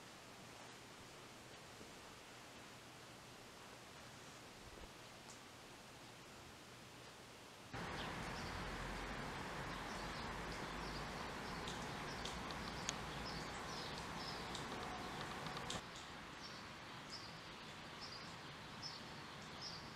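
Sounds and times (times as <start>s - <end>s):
steady background hiss: 0.0s - 19.9s
small birds chirping: 7.8s - 15.8s.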